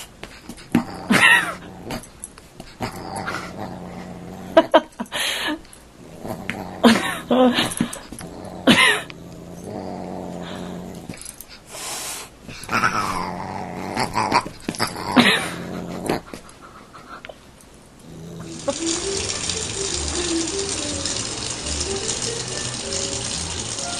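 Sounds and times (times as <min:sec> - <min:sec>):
paws thumping and clicking: 0:00.0 - 0:01.2, 0:12.4 - 0:12.8, 0:14.0 - 0:17.4
animal growling: 0:00.7 - 0:02.1, 0:02.7 - 0:04.8, 0:06.0 - 0:11.3, 0:12.6 - 0:16.4, 0:18.0 - 0:23.9.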